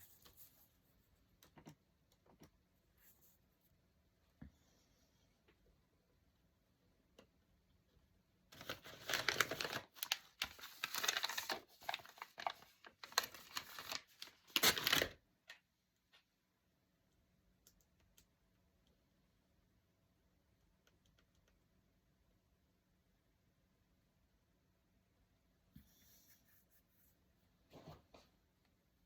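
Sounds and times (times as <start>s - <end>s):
paper tearing and crinkling: 8.6s - 15.2s.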